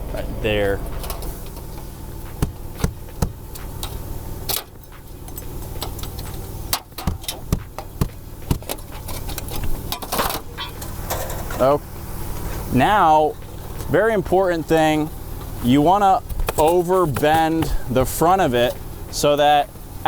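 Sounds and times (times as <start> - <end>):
steady low hum: 0.0 - 20.0
hand tools tapping metal: 0.9 - 11.6, 16.3 - 18.8.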